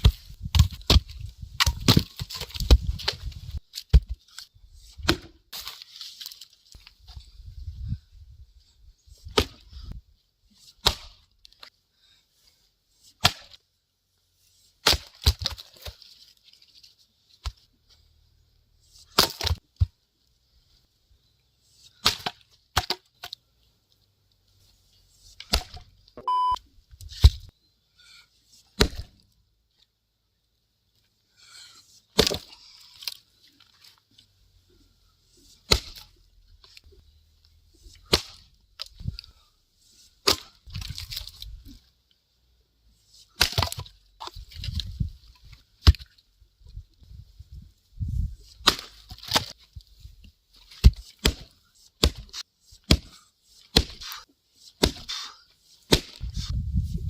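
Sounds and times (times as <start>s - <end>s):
axe chopping wood: 0.0s - 4.2s, 5.0s - 5.7s, 9.2s - 9.6s, 10.8s - 11.2s, 13.2s - 13.6s, 14.8s - 15.9s, 19.0s - 19.6s, 22.0s - 23.1s, 25.4s - 25.9s, 28.8s - 29.2s, 32.2s - 32.6s, 35.7s - 36.1s, 38.0s - 38.5s, 40.2s - 41.3s, 43.4s - 44.4s, 45.8s - 46.1s, 48.6s - 49.6s, 50.7s - 55.3s, 55.9s - 56.5s.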